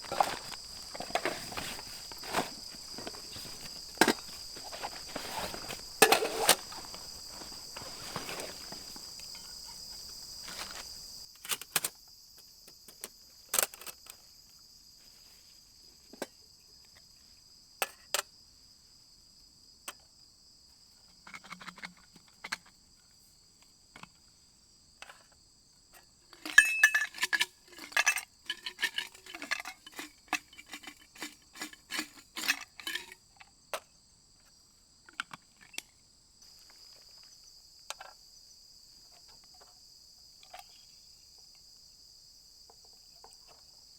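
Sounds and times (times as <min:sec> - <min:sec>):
metal camp gear clinking: 0:00.0 - 0:11.9, 0:13.0 - 0:14.2, 0:26.3 - 0:33.5
crickets chirring: 0:00.0 - 0:43.9.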